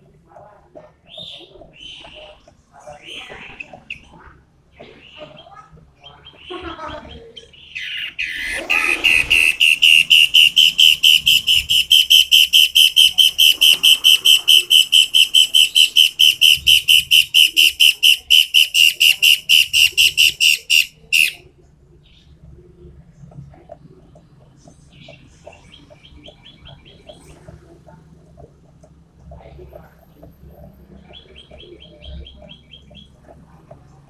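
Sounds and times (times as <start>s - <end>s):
songbird whistling rapid notes: 7.8s - 21.4s.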